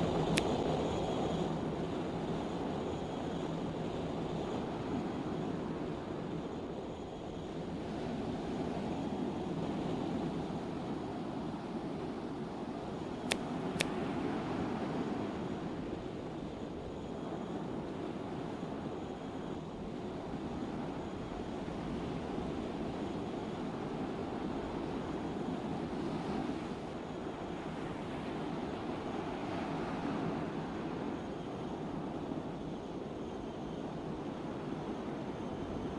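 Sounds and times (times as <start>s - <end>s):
wind: 0.0s - 35.9s.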